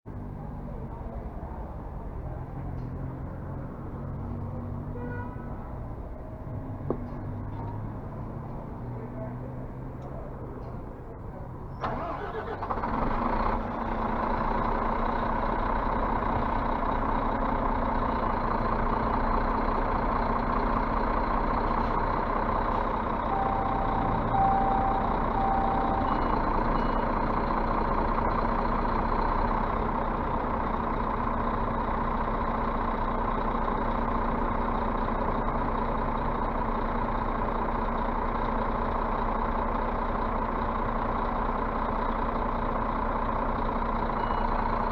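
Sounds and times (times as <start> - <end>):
diesel bus engine running: 0.0 - 44.9
short beeps: 23.3 - 27.3, 44.2 - 44.6.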